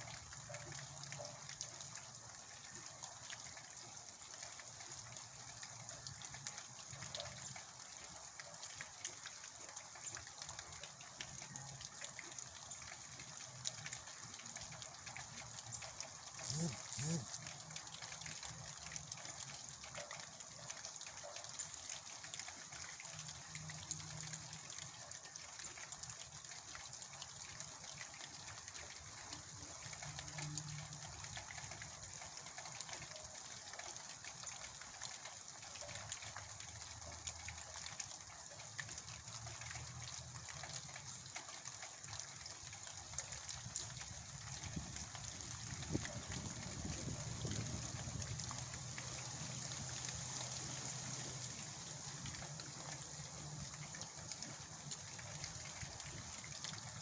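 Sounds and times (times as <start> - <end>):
heavy rain: 45.4 - 57.0.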